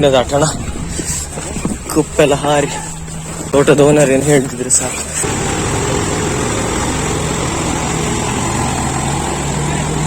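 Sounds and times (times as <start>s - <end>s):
vehicle engine running: 5.1s - 10.0s.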